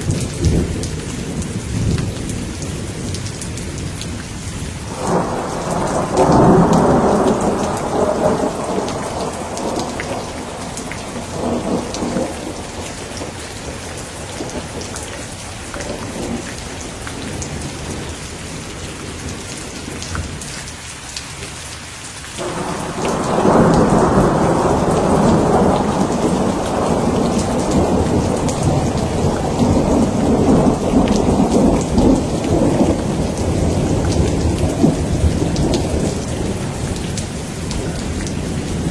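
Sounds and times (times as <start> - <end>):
steady rain falling: 0.0 - 38.9
thunder rumbling: 4.8 - 18.6, 22.4 - 38.9.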